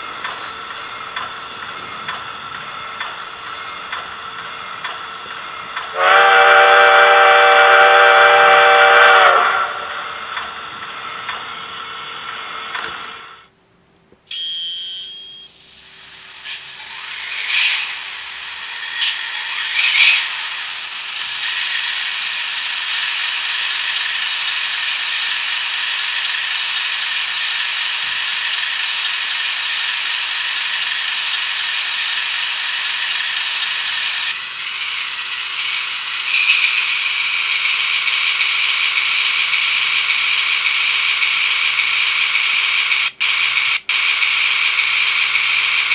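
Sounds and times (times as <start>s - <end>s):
model locomotive whirring: 0.0s - 13.5s, 15.5s - 45.9s.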